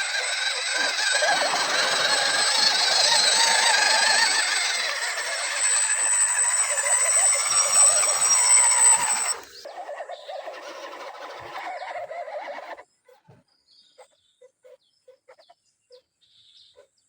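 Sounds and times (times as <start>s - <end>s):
electric motor whining: 0.0s - 11.8s.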